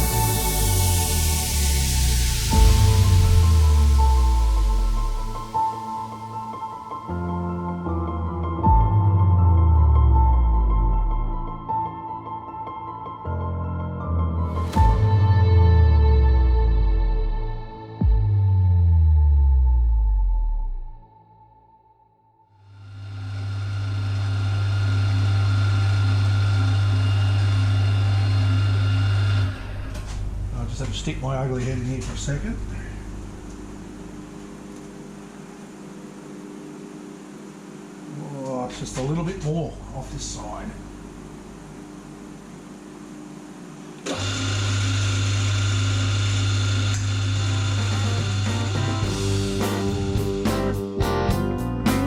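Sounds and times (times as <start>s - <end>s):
milling machine motor humming: 22.8s - 31.0s, 40.7s - 50.3s.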